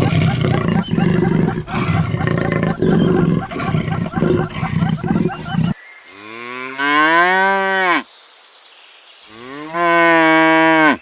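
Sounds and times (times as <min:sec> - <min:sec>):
animal call: 0:00.0 - 0:05.8.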